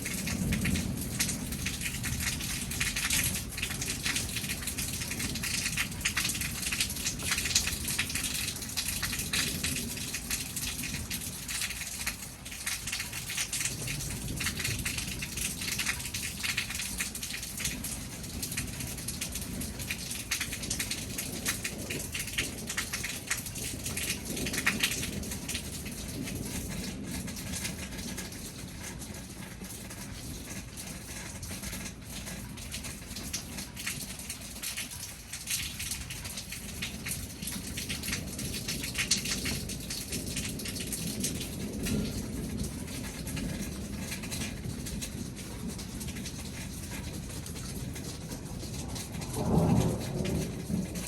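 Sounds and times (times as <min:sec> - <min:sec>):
rain patter: 0:00.0 - 0:51.0.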